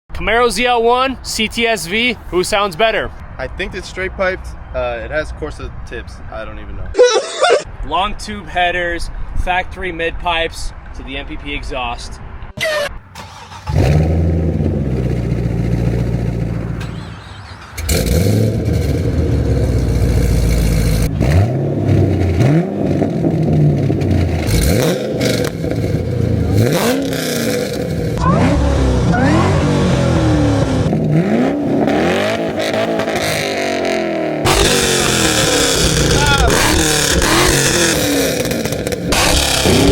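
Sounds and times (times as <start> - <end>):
car engines revving: 12.2 - 39.9.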